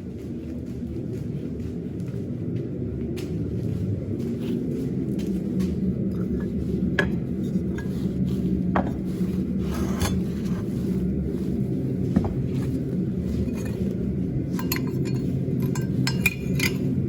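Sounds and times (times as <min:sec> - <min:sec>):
steady low rumble: 0:00.0 - 0:17.0
metal clinks and scrapes: 0:06.1 - 0:11.0, 0:12.0 - 0:17.0.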